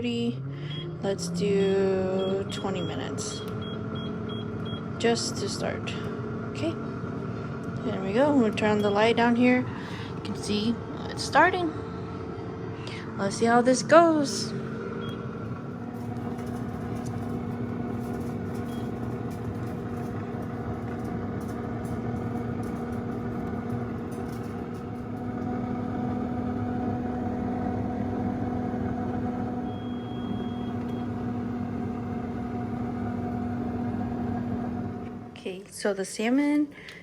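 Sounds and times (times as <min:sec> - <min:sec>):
convection fan humming: 0:00.0 - 0:37.0.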